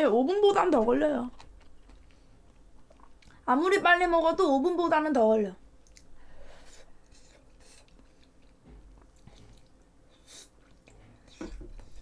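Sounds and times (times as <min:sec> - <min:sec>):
person chewing food: 0:01.3 - 0:03.4, 0:05.8 - 0:12.0.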